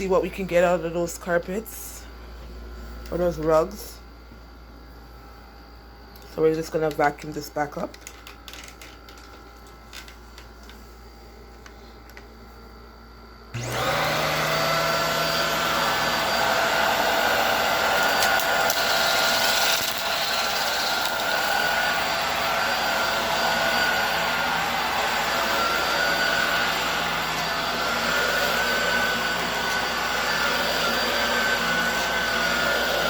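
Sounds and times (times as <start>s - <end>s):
vacuum cleaner motor whining: 13.5s - 33.0s.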